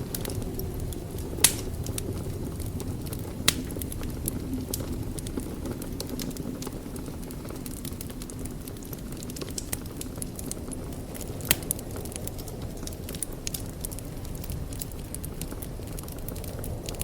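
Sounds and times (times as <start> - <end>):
wood fire burning: 0.0 - 17.0
sharp pops of burning wood: 1.3 - 4.9, 7.5 - 17.0.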